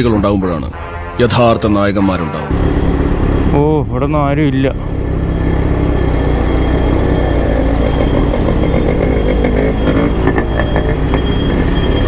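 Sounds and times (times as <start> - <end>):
motorcycle engine rumbling: 2.5 - 12.0.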